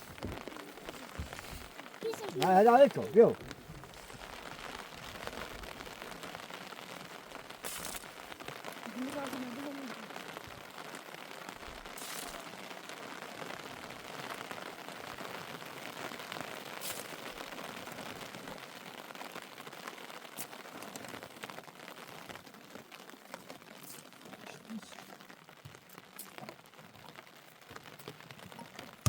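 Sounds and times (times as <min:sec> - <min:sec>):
raindrop taps: 0:00.0 - 0:12.5, 0:25.2 - 0:29.0
steady rain falling: 0:00.0 - 0:29.0.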